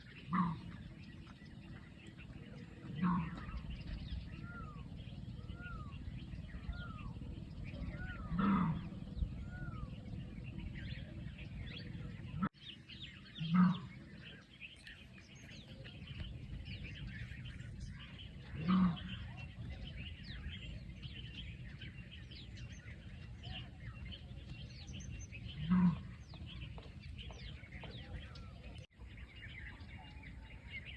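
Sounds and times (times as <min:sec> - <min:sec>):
birds chirping: 0:00.0 - 0:30.9
large animal low call: 0:02.7 - 0:12.5, 0:17.8 - 0:19.6.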